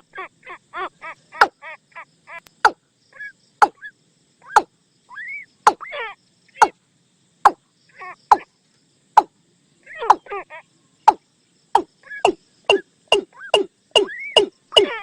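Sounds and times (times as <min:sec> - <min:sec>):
bird sharp knocking calls: 0:03.6 - 0:03.8, 0:04.5 - 0:04.7, 0:05.7 - 0:05.9, 0:10.0 - 0:10.3, 0:11.8 - 0:15.0
bird calling hollow notes: 0:03.6 - 0:03.9, 0:04.5 - 0:04.7, 0:05.7 - 0:05.9, 0:10.0 - 0:10.3, 0:11.8 - 0:15.0.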